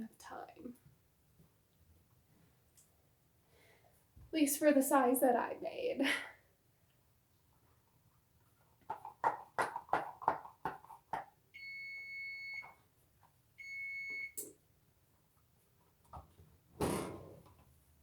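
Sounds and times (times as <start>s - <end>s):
oven timer beeps: 11.6s - 12.7s, 13.6s - 14.5s.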